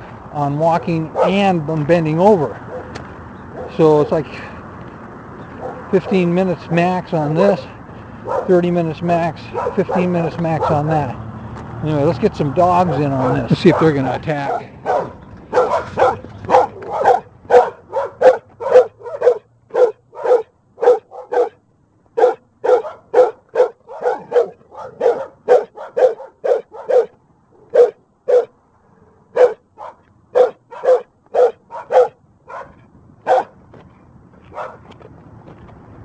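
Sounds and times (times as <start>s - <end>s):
dog barking: 1.1s - 1.4s, 2.7s - 2.9s, 3.5s - 3.8s, 5.6s - 6.2s, 7.4s - 8.6s, 9.5s - 11.0s, 12.9s - 21.6s, 22.2s - 28.5s, 29.3s - 33.6s, 34.5s - 34.8s.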